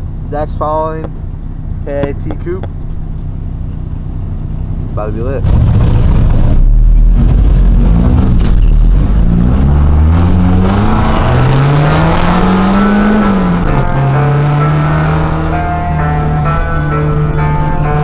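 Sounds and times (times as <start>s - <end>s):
car engine accelerating: 2.1s - 18.0s.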